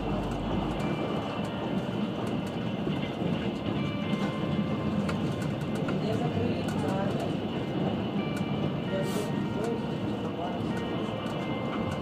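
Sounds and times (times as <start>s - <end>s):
low hum: 0.0s - 1.4s
train carriage rumble and rattle: 0.0s - 12.0s.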